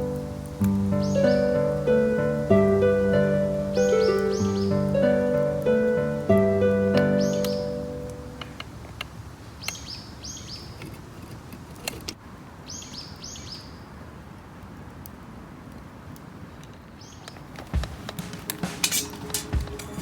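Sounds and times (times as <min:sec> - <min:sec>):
steady hiss: 0:00.0 - 0:10.0, 0:17.2 - 0:20.0
small birds chirping: 0:00.0 - 0:11.3, 0:12.6 - 0:14.0, 0:16.8 - 0:20.0.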